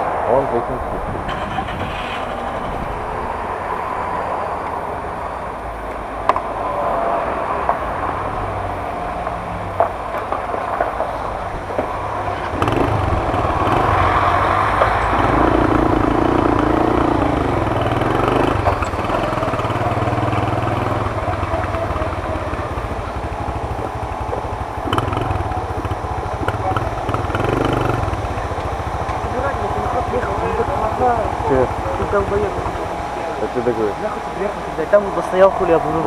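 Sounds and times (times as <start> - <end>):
moped engine running: 1.3 - 3.4, 11.2 - 36.0.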